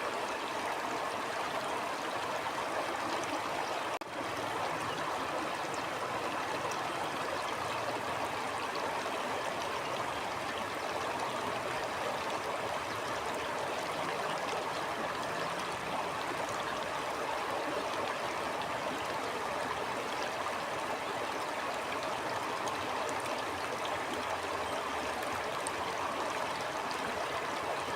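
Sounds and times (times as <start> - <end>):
stream babbling: 0.0 - 27.9.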